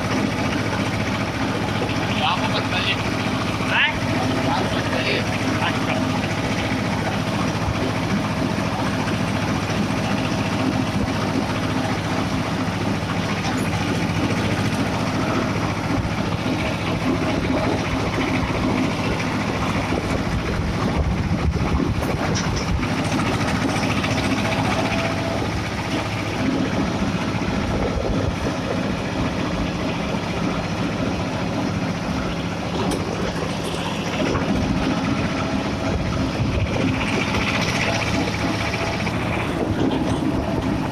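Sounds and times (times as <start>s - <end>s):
road and rattle noise: 0.0s - 40.9s
tractor diesel engine running: 0.0s - 40.9s.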